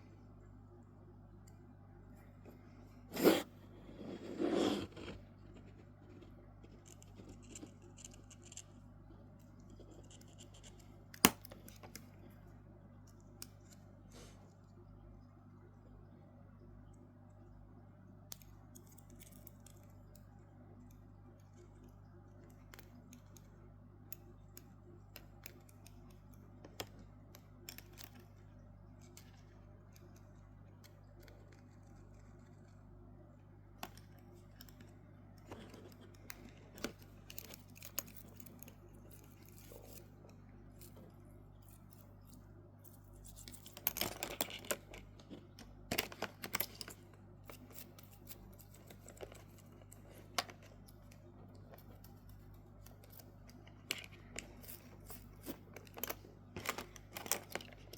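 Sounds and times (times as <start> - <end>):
steady low hum: 0.0 - 57.9
clicking and scraping: 2.3 - 12.2, 33.7 - 57.9
small parts clicking and tapping: 4.9 - 14.8, 18.0 - 57.9.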